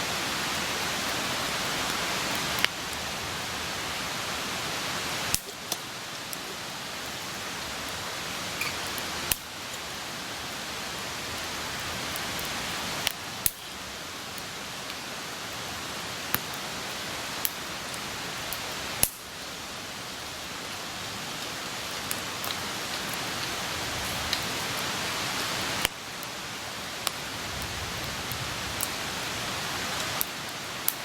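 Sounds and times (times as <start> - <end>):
campfire flame hissing: 0.0 - 31.0
fire crackling: 0.0 - 31.0
burning wood popping: 5.2 - 10.6, 11.7 - 15.0, 17.4 - 19.2, 21.4 - 24.8.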